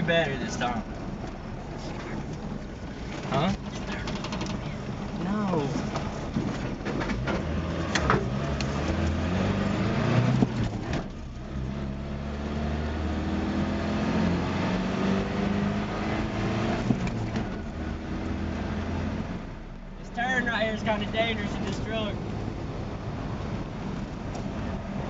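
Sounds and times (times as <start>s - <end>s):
sharp knocks and rattles: 3.0s - 5.1s, 5.8s - 8.3s
engine accelerating hard: 7.0s - 23.9s.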